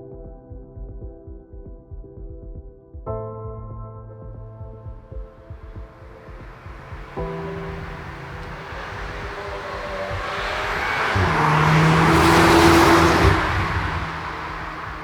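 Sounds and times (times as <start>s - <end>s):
car engine passing by: 6.2s - 15.0s
tyre noise: 6.3s - 15.0s.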